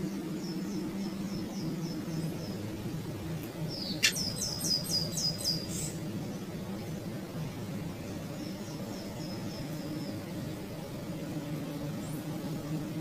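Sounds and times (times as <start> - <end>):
bird chirping: 3.7 - 6.0
sharp click: 4.0 - 4.2.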